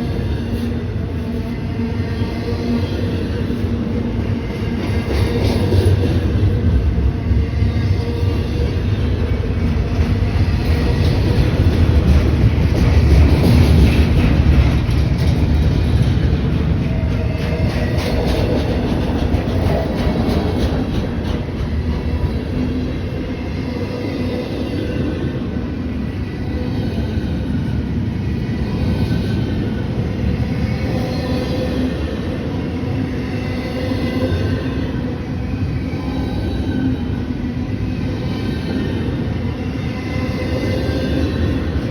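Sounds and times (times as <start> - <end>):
train wheels rumbling on rails: 0.0 - 41.9
wheels clicking over rail joints: 9.6 - 23.0.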